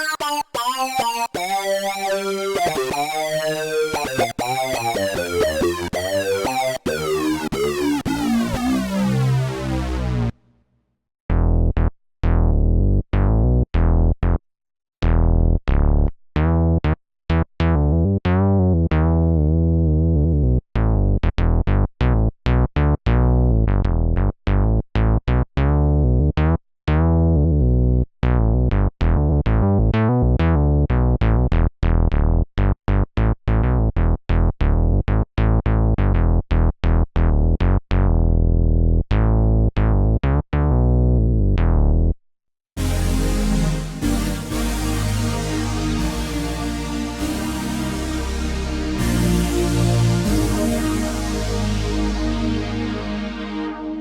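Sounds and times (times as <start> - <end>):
synthesizer plucky bass notes: 0.0 - 10.4, 42.8 - 54.0.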